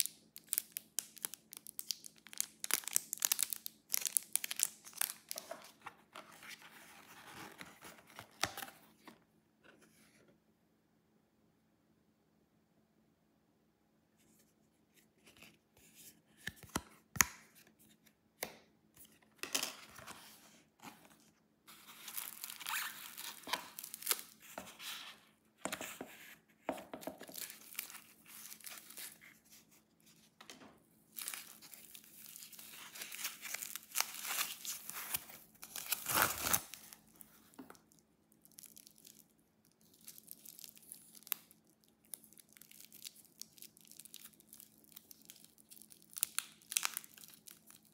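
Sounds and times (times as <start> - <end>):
wrapping crinkling and tearing: 0.0 - 8.6, 21.1 - 25.2, 27.2 - 30.3, 31.1 - 47.9.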